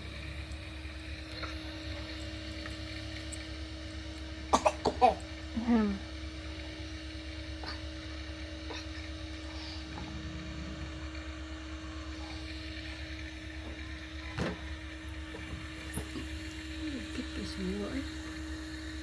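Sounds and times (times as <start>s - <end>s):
engine running rumble: 0.0s - 19.0s.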